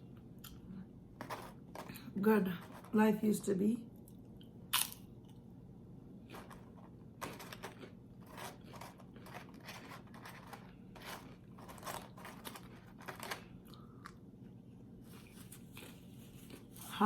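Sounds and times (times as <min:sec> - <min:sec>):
chewing crunchy chips: 0:04.4 - 0:05.4, 0:06.2 - 0:14.2.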